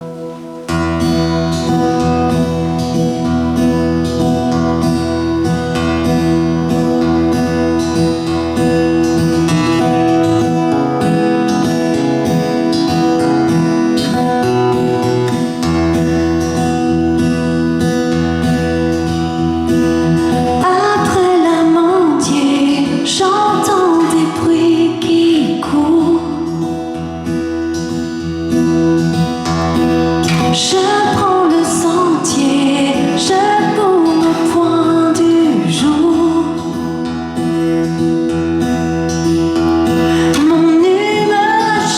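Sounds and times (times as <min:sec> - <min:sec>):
wavering lead melody: 0:00.0 - 0:23.2
strummed acoustic guitar: 0:00.0 - 0:41.9.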